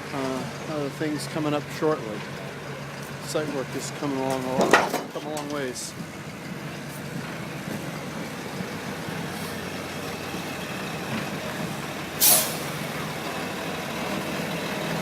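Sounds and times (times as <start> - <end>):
heavy truck engine running: 0.0 - 15.0
air brakes hiss: 12.2 - 12.8.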